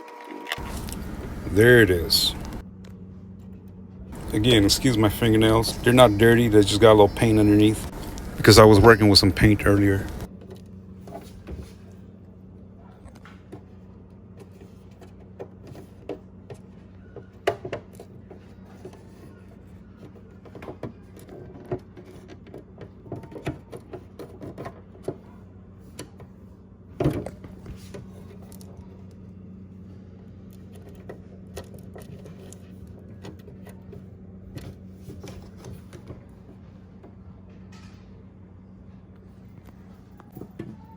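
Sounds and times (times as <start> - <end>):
steady low hum: 0.6 - 3.3, 4.1 - 10.3.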